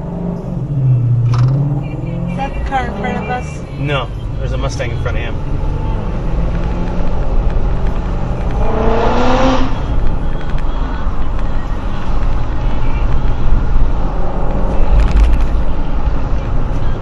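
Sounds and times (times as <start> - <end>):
road noise: 0.0 - 17.0
truck engine drone: 0.0 - 17.0
rushing sound with rising tone: 6.3 - 10.2.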